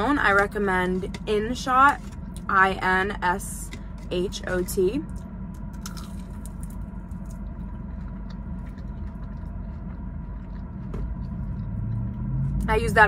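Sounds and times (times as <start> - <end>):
low rumble: 0.0 - 13.0
steady low hum: 0.0 - 13.0
chewing fried food: 5.1 - 12.7.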